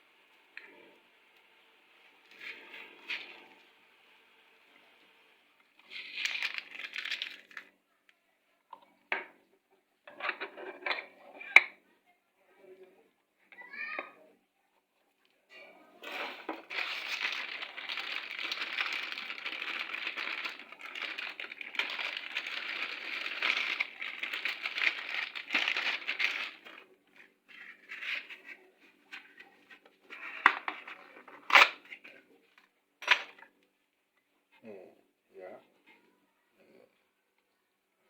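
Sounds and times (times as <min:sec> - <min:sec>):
crinkling rustling handling noise: 0:05.8 - 0:07.7, 0:16.0 - 0:32.2.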